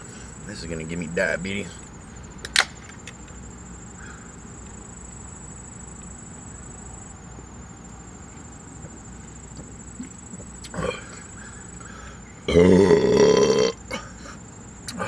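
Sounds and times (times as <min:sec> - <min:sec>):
loud burp: 0:10.7 - 0:11.2, 0:12.5 - 0:14.2
short breath: 0:11.4 - 0:12.3.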